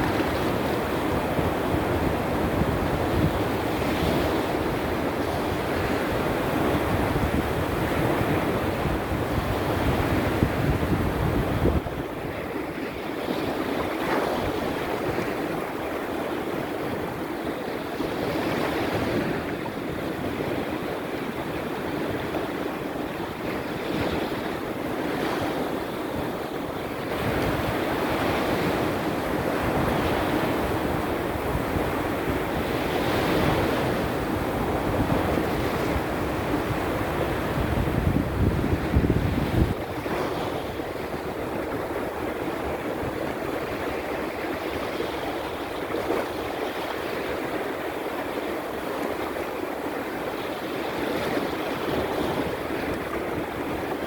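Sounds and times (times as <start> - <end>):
surf washing onto shore: 0.0 - 54.0
wind buffeting microphone: 0.0 - 54.0.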